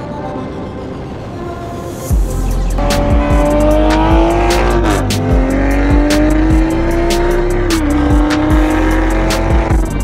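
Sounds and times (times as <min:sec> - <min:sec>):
background music with steady beat: 0:00.0 - 0:10.0
car engine accelerating hard: 0:02.8 - 0:10.0.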